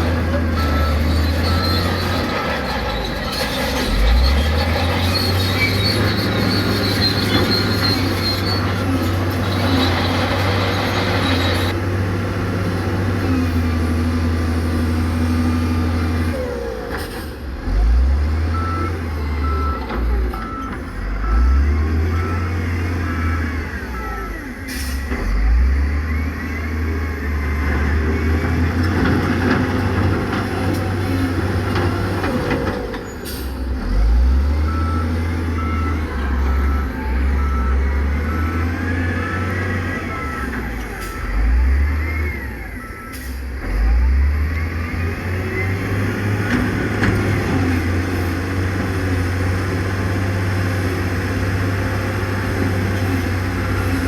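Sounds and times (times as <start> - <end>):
diesel machinery engines revving: 0.0 - 54.0
reversing alarm beeping: 0.4 - 2.7, 18.5 - 28.8, 33.9 - 46.8.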